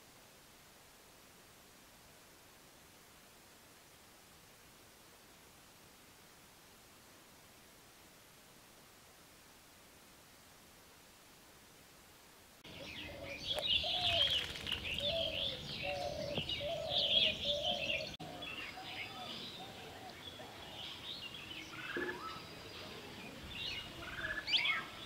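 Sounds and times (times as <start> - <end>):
birds chirping and twittering: 12.6 - 25.0
lower repeated bird call: 12.7 - 22.6.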